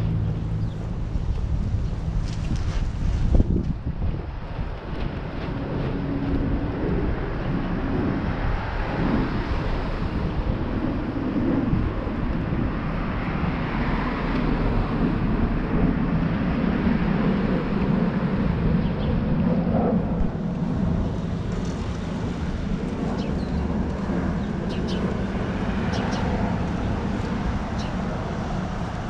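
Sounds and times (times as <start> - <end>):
outdoor rumble and hiss: 0.0 - 29.0.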